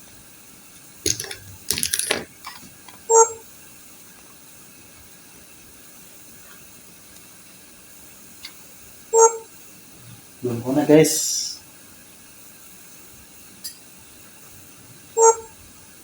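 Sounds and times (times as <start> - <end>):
clattering handling noise: 1.1 - 3.1.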